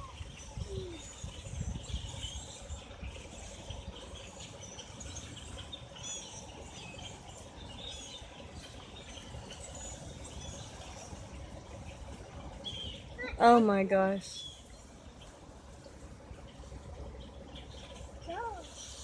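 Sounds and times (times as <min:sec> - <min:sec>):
flock of birds chirping: 0:00.0 - 0:19.0
low steady rumble: 0:00.0 - 0:19.0.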